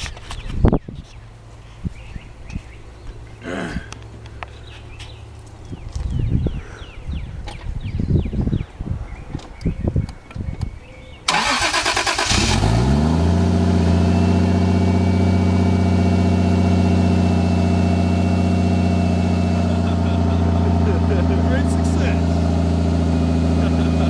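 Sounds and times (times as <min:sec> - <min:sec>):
engine starter cranking: 0:11.3 - 0:13.2
car engine idling: 0:11.3 - 0:24.0.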